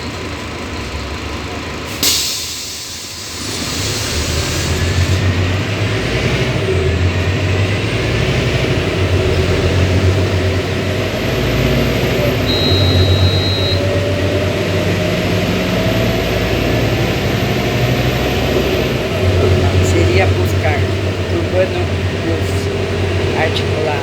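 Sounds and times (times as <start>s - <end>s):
bus diesel engine: 0.0s - 24.0s
compressed-air hiss: 2.0s - 5.1s.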